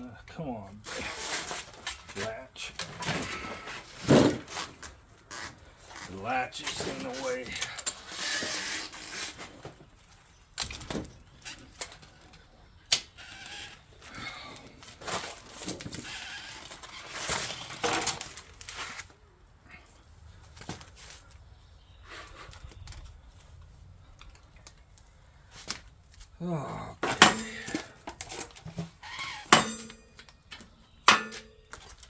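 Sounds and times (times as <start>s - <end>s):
handling clicks and knocks: 27.0s - 32.0s.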